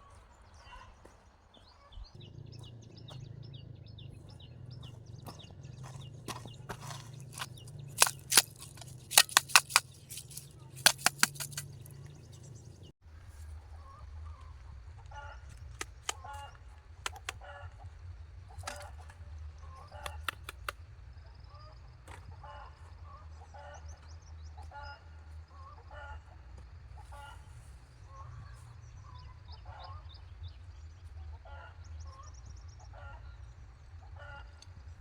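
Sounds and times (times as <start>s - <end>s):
sharp knocks and clatters: 6.3s - 11.8s
chickens clucking: 18.6s - 20.8s.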